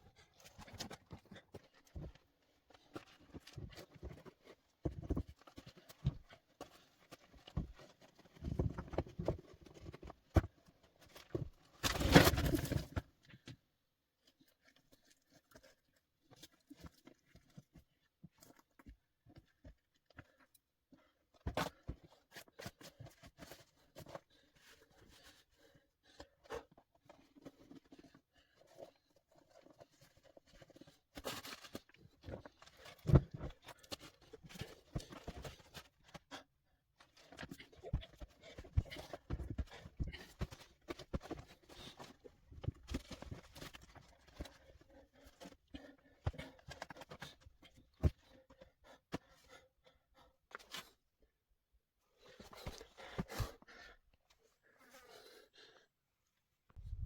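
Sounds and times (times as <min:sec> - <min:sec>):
rustling and scraping: 0:00.4 - 0:13.1.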